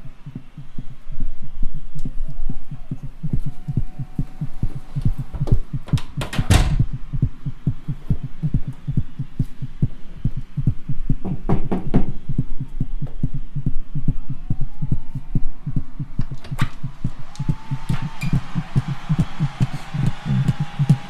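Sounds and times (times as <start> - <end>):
beatboxing bass pulses: 0.0 - 11.5, 12.1 - 21.0
beatboxed snare hits: 16.2 - 21.0.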